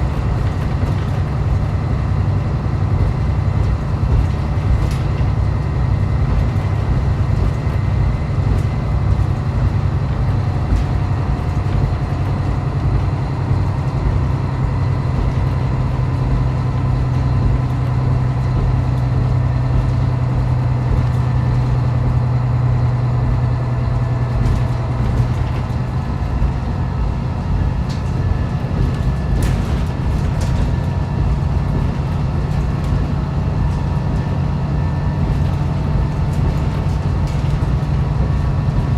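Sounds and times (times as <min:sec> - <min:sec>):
diesel engine drone: 0:00.0 - 0:38.9
rail and wheel noise: 0:00.0 - 0:38.9.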